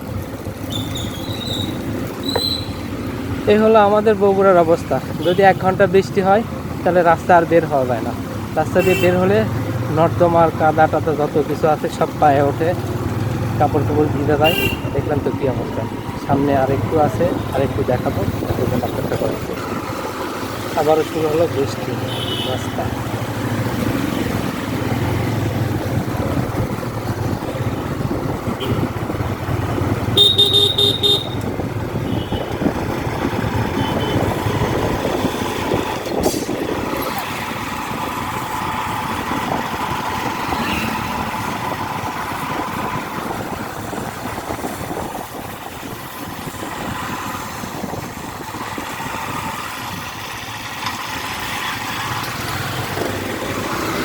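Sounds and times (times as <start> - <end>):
vehicle engines running: 0.0 - 54.0
car horn toot: 14.4 - 15.0, 22.1 - 22.7, 28.6 - 28.9, 30.2 - 32.6, 33.8 - 34.4.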